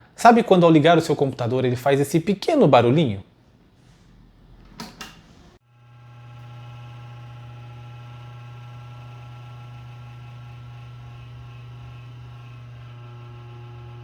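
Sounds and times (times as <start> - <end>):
power supply electrical buzz: 4.7 - 14.0.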